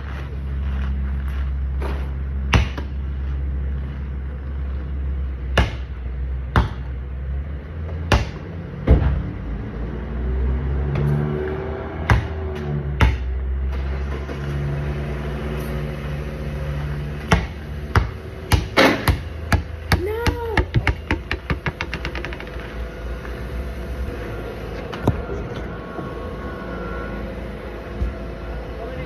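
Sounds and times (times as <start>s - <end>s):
basketball bouncing on hard court: 2.5s - 3.0s, 5.6s - 5.9s, 6.5s - 7.0s, 8.1s - 9.2s, 12.0s - 12.4s, 13.0s - 13.3s, 17.2s - 22.6s.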